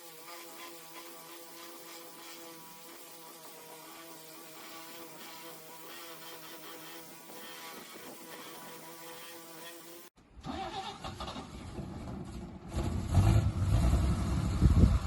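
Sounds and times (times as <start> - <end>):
wind buffeting microphone: 14.2 - 15.0.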